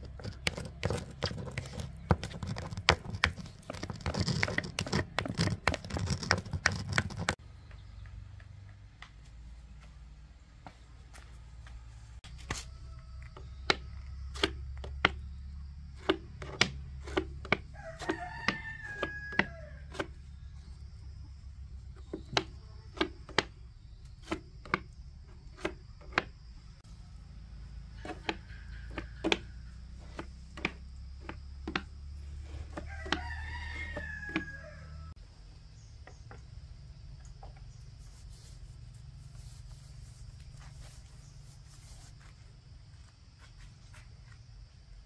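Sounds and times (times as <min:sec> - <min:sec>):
rooster crowing: 0:11.7 - 0:14.3, 0:17.7 - 0:20.1, 0:32.7 - 0:35.2.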